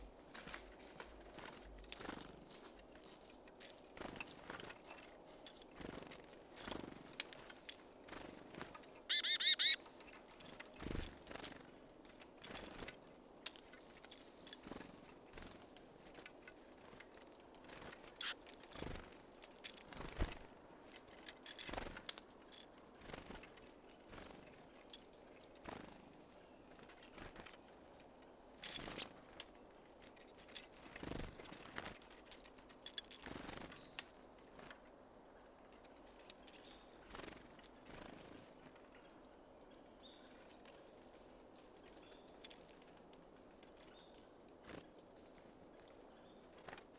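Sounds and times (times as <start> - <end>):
birds pecking and tapping: 0.3 - 34.9, 35.6 - 46.9
wing flutters: 3.7 - 11.7
faint high bird chirps: 9.1 - 9.8.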